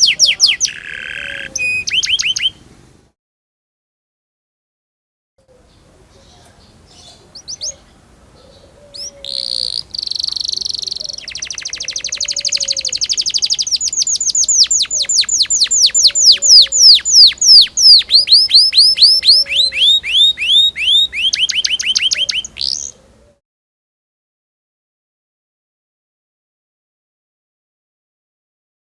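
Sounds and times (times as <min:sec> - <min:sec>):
canary singing: 0:00.0 - 0:02.7, 0:05.5 - 0:23.1.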